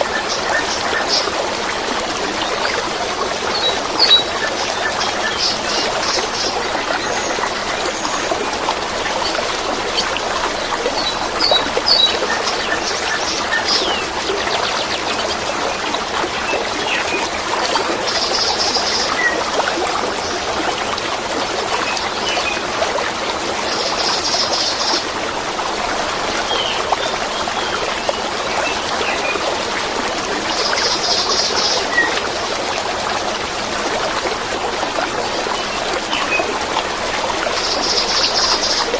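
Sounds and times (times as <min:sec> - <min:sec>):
stream trickling and babbling: 0:00.0 - 0:38.9.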